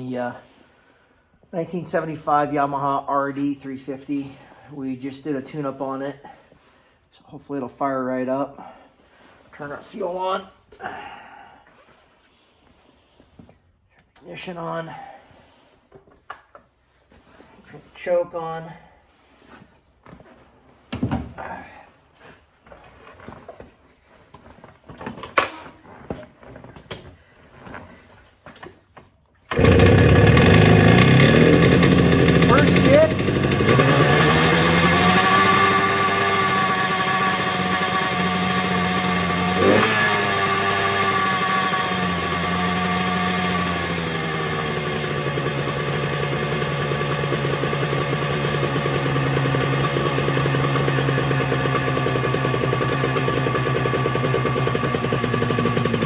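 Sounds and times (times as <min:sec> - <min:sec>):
motorcycle engine starting and running: 0:29.5 - 0:56.0.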